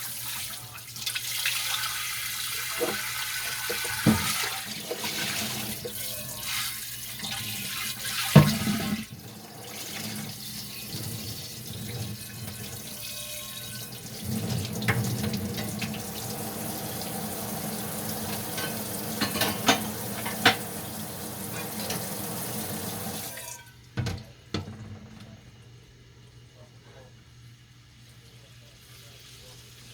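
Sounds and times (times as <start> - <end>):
tap water running into sink: 0.0 - 13.0, 13.8 - 24.2
dishes clinking and knocking: 3.6 - 6.0, 8.3 - 9.0, 18.1 - 20.8, 21.4 - 22.3, 23.4 - 25.2.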